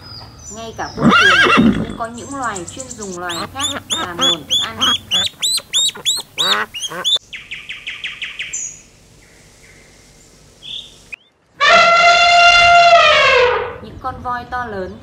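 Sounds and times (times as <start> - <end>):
elephant trumpeting: 1.0 - 2.0, 3.2 - 7.2, 11.6 - 13.8
ducklings peeping: 1.9 - 8.8.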